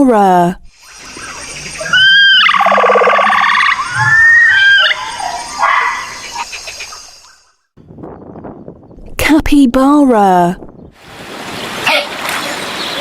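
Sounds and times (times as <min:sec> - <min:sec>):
capybara buzzy call: 0:01.2 - 0:06.4
capybara squeaks and whistles: 0:01.8 - 0:05.3.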